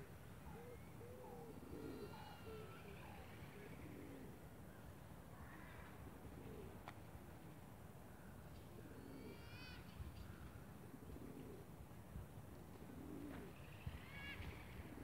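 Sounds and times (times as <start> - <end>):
faint birds calling: 0.0 - 6.8.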